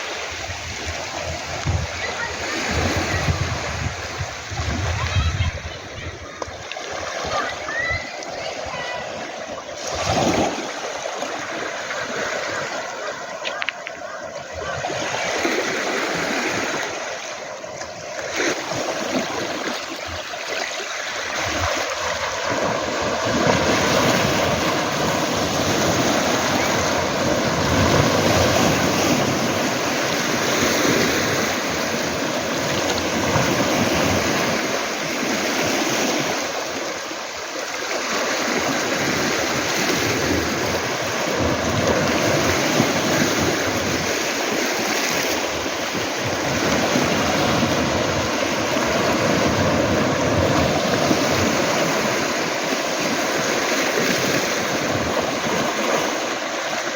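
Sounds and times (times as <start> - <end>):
waves washing onto pebble beach: 6.7 - 56.9.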